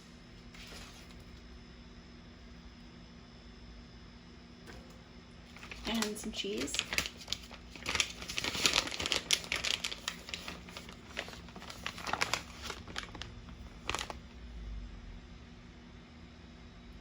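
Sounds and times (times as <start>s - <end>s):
plastic bag crinkling: 5.5s - 14.4s.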